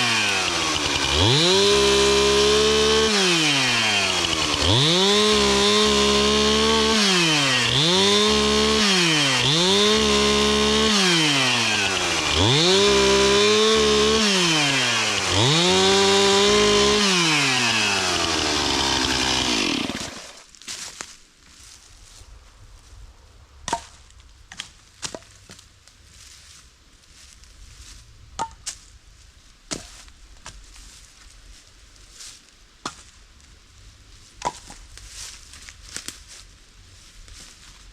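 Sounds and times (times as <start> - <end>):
chainsaw cutting wood: 0.0 - 20.5.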